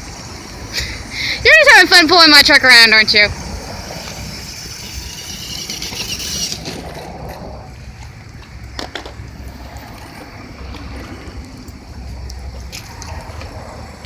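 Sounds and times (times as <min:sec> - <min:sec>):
rc truck motor whine: 0:00.0 - 0:09.0.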